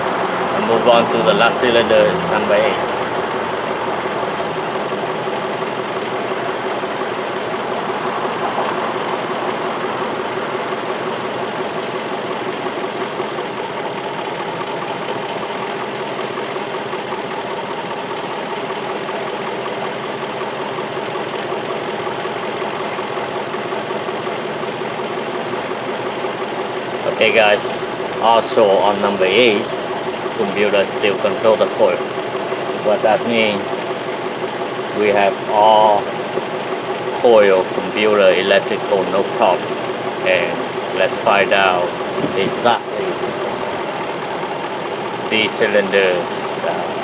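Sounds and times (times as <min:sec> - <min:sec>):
car engine idling: 0:00.0 - 0:47.0.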